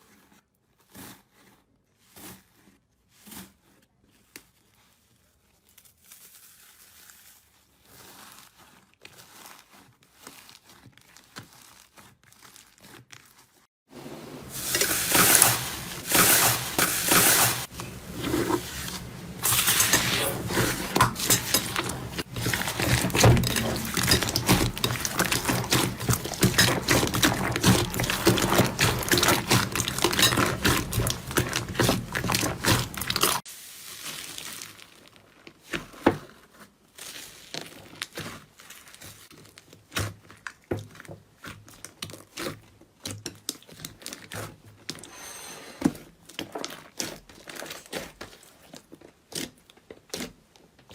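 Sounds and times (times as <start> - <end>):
slime crackling and popping: 19.0 - 36.0.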